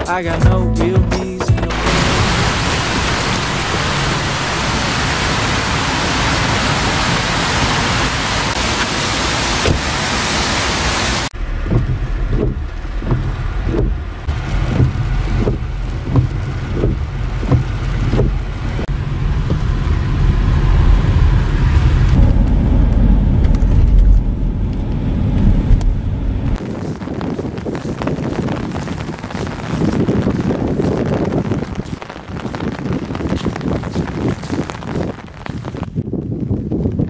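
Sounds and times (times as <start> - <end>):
deep rumble of rain: 1.6 - 37.0
heavy rain hiss: 1.7 - 11.3, 26.6 - 35.9.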